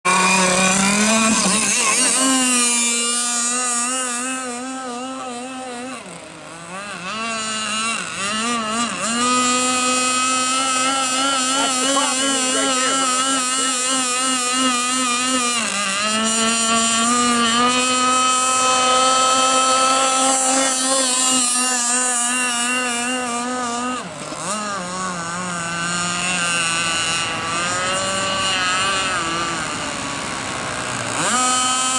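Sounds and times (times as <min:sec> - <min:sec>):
boat gas engine running: 0:00.0 - 0:31.9.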